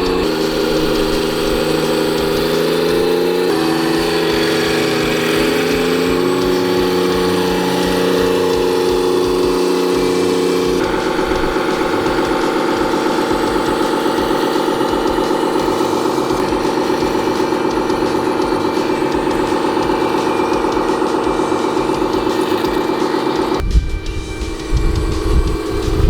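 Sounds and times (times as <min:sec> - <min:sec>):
toy truck motor hum: 0:00.0 - 0:23.6.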